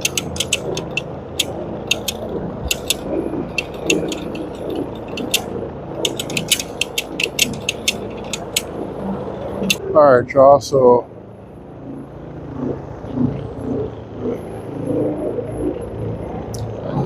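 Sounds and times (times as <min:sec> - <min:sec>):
rapid clicks and rattles: 0:00.0 - 0:09.8.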